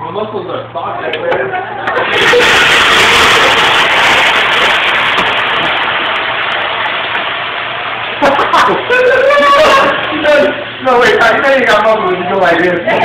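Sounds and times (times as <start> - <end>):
food sizzling in hot oil: 2.0 - 11.7.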